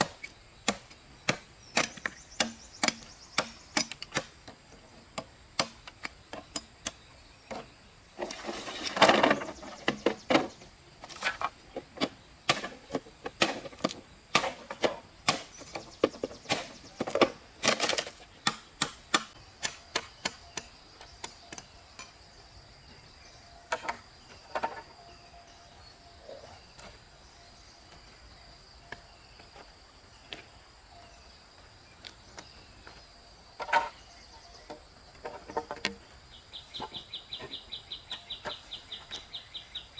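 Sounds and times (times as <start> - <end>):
rustling scrape: 8.2 - 9.7.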